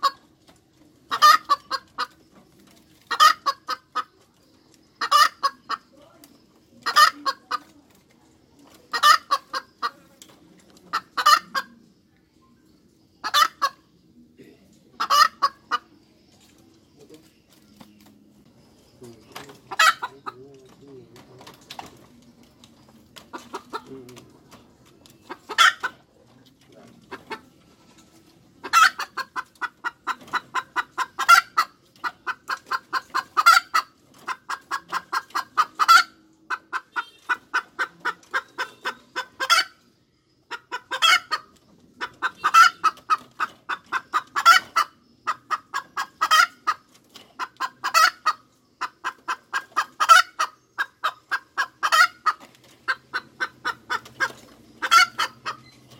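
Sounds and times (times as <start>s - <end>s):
hen cackling: 1.1s - 2.2s, 3.1s - 4.3s, 4.9s - 6.0s, 6.8s - 7.7s, 8.7s - 10.1s, 10.8s - 11.8s, 13.2s - 13.9s, 15.0s - 16.0s, 19.6s - 20.5s, 23.2s - 24.2s, 25.3s - 26.1s, 28.6s - 55.7s.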